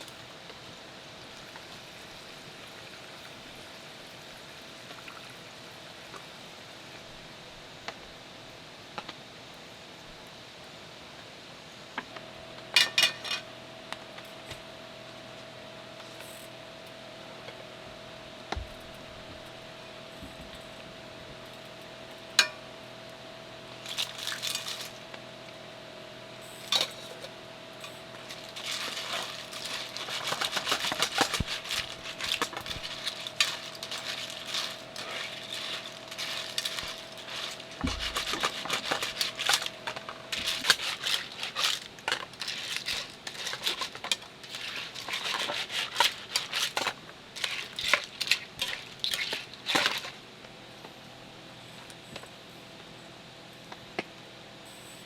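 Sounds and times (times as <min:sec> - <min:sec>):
metal cookware clinking and clattering: 0:12.8 - 0:13.4, 0:28.3 - 0:50.1.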